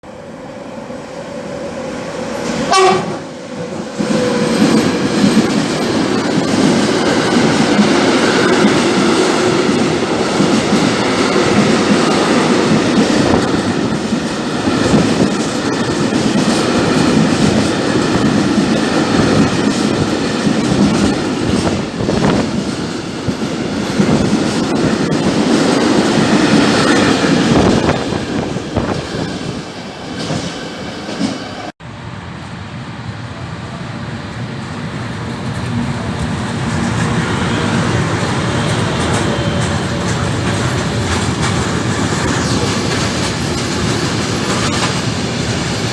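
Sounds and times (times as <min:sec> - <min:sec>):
train horn blast: 0:02.4 - 0:03.4
train wheels clattering: 0:35.4 - 0:45.9.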